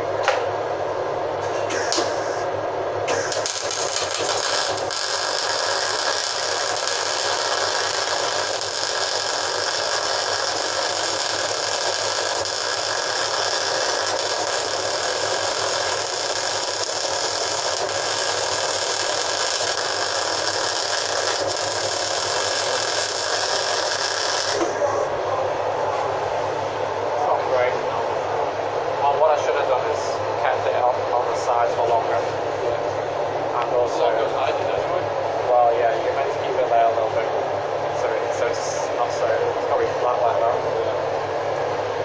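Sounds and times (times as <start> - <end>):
faint hum: 0.0 - 42.0.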